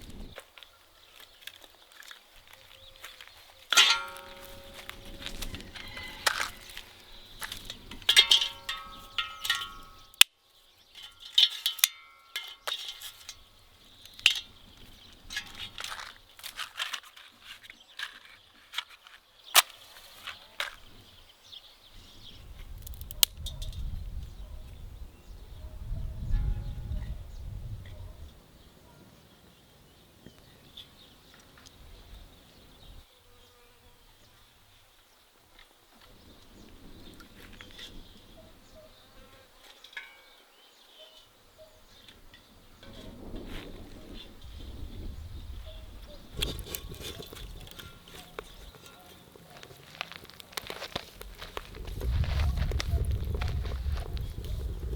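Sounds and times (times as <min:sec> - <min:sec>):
metal cooking gear clinking: 0:03.7 - 0:06.9, 0:07.5 - 0:10.1, 0:11.0 - 0:13.5.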